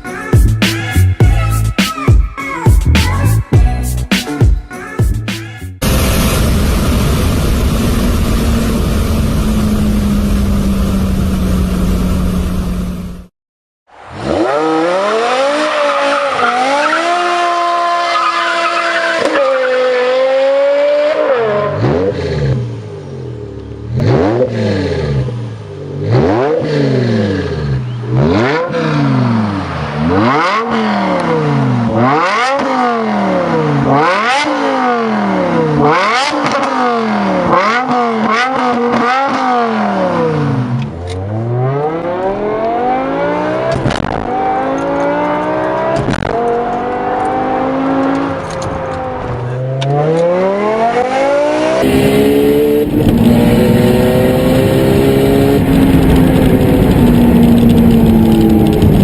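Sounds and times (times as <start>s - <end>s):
car engine accelerating hard: 5.8s - 13.3s, 14.0s - 59.0s.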